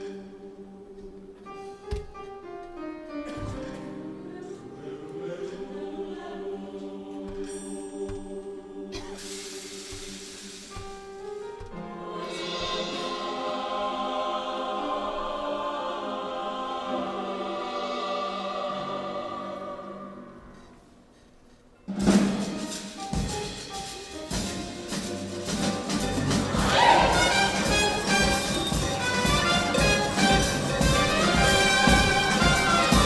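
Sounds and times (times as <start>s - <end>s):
choir singing sustained chord: 0.0s - 1.8s, 3.9s - 10.9s, 11.8s - 20.9s, 26.2s - 33.0s
drum strikes: 12.1s - 14.0s, 21.9s - 33.0s.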